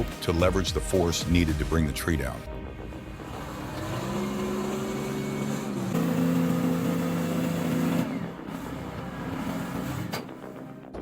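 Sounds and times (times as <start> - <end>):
bulldozer diesel engine under load: 3.1 - 10.8.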